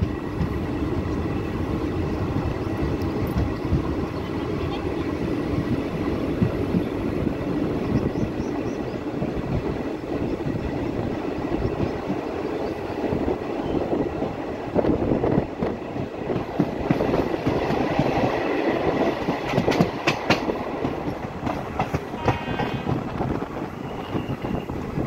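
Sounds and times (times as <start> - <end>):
train rumbling on rails: 0.0 - 25.0
wheels clicking over rail joints: 15.5 - 23.0.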